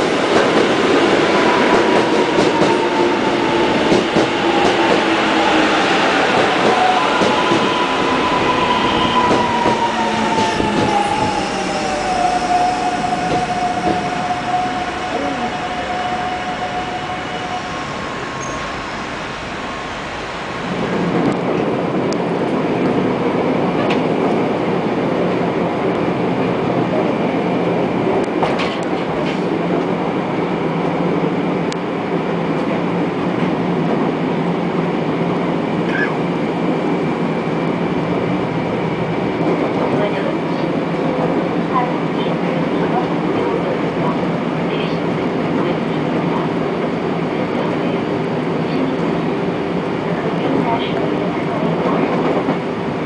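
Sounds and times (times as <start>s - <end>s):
train wheels rolling: 0.3s - 19.3s
rumble inside moving train: 20.7s - 53.0s.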